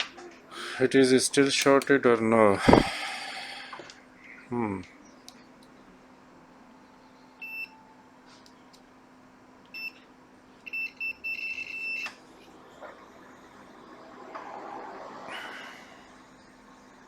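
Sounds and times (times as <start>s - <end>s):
faint steady hum: 0.0s - 17.0s
multimeter continuity beeps: 7.4s - 7.8s, 9.7s - 10.0s, 10.6s - 12.1s.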